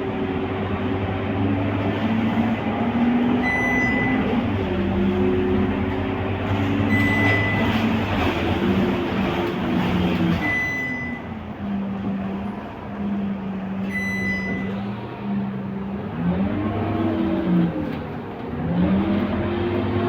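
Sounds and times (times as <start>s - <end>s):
bus engine running: 0.0s - 20.0s
road noise: 0.0s - 20.0s
short high beeps: 3.4s - 4.4s, 6.9s - 7.9s, 10.4s - 11.4s, 13.8s - 14.9s.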